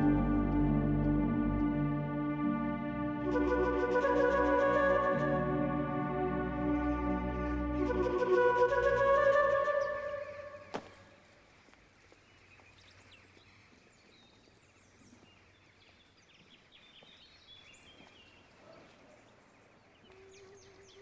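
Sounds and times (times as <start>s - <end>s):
small birds chirping: 6.7s - 21.0s.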